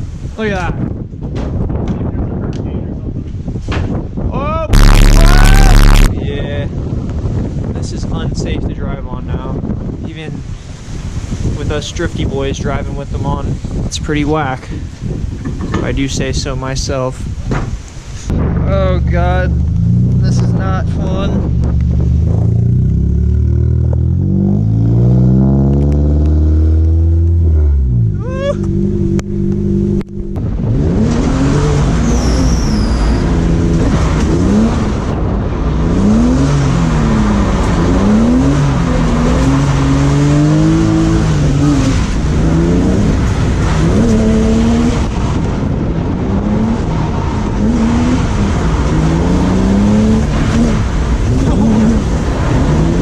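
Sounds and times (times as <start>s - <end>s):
wind and wet road spray: 0.0s - 4.2s, 5.3s - 27.4s, 30.4s - 53.0s
car engine revving: 4.7s - 6.1s, 18.3s - 53.0s.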